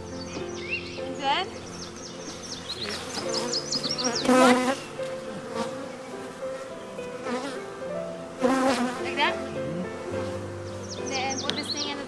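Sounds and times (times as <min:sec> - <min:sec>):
small bird chirping: 0:00.0 - 0:05.0
bees buzzing: 0:00.0 - 0:12.0.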